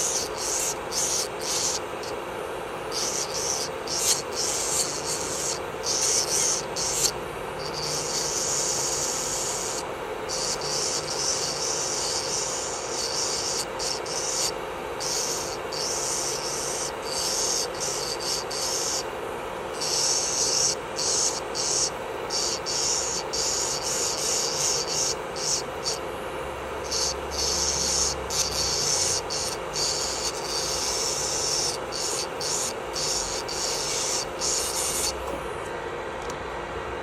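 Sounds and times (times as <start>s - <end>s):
drill bit grinding nail: 0.0s - 2.2s, 2.9s - 19.1s, 19.7s - 26.0s, 26.8s - 35.4s
electric nail drill whining: 0.0s - 26.2s, 26.8s - 35.6s.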